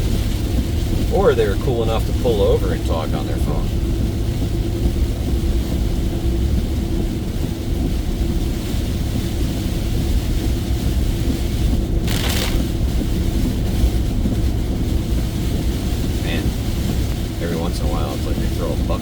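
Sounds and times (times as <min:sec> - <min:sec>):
engine and road rumble: 0:00.0 - 0:19.0
heavy rain drumming on truck roof: 0:00.0 - 0:19.0.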